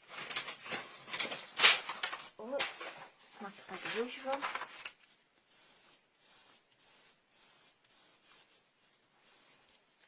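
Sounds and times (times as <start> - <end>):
faint rubbing on card stock: 3.4 - 10.0.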